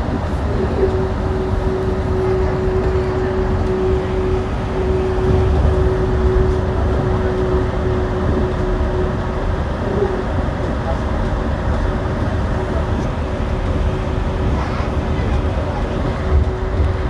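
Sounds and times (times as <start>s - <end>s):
constant hum tone: 0.0s - 17.0s
train rumbling: 0.0s - 17.0s.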